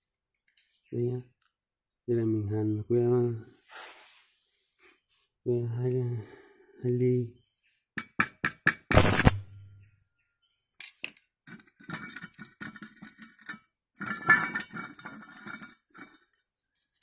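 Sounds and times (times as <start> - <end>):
welding arc crackling: 8.9 - 9.6
arc strike burst and hum: 8.9 - 9.7.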